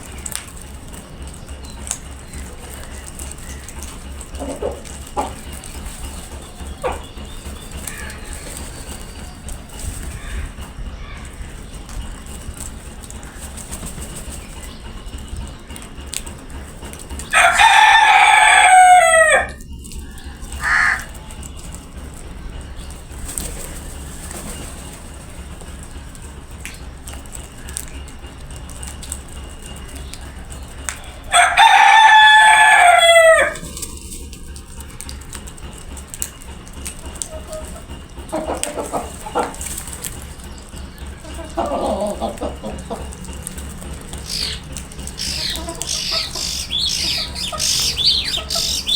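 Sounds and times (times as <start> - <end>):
rooster crowing: 17.3 - 19.6, 20.6 - 21.1, 31.2 - 33.6.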